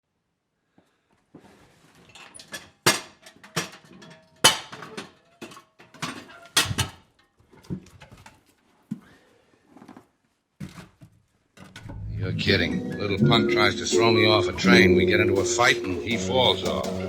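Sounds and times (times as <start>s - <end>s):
sharp knocks and clatters: 2.1s - 8.4s.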